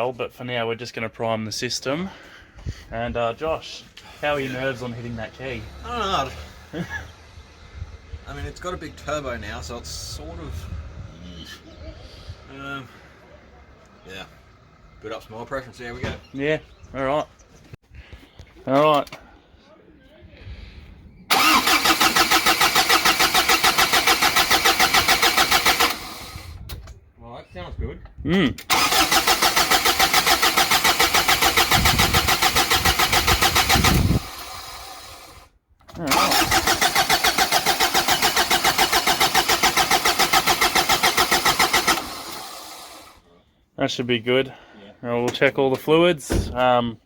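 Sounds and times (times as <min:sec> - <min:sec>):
diesel engine cranking on starter: 0:21.3 - 0:26.6, 0:28.6 - 0:43.2.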